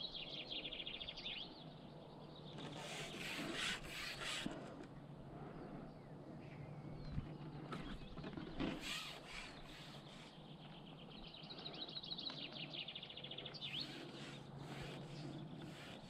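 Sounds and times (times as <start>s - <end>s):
faint outdoor background noise: 0.0s - 16.0s
songbird trilling: 8.9s - 16.0s.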